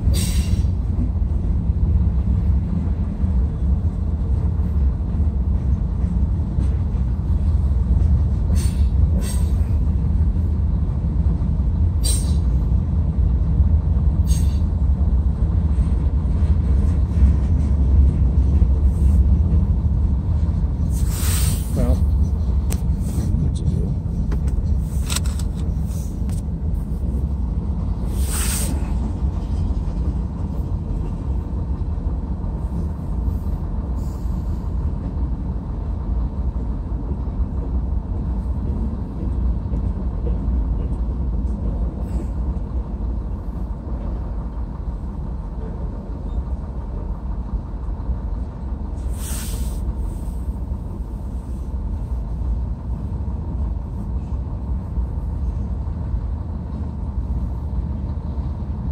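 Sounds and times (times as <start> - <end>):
freight train cars rumbling: 0.0 - 58.9
brief hisses: 12.0 - 12.4, 20.9 - 21.8, 28.1 - 28.8, 49.1 - 50.4.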